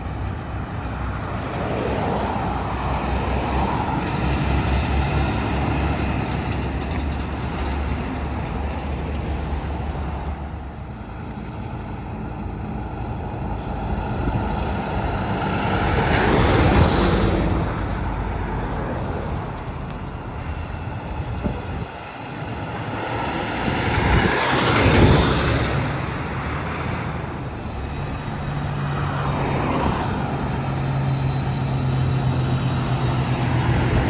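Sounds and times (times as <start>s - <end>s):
highway traffic: 0.0s - 34.0s
vehicle passing close: 13.6s - 34.0s.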